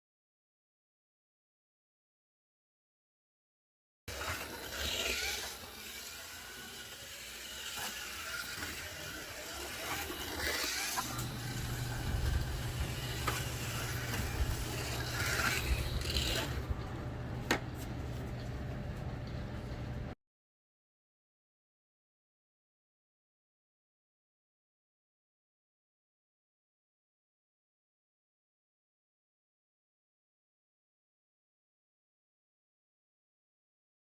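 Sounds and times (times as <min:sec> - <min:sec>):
slot car motor and gears: 0:04.1 - 0:17.4
steady low hum: 0:04.1 - 0:20.2.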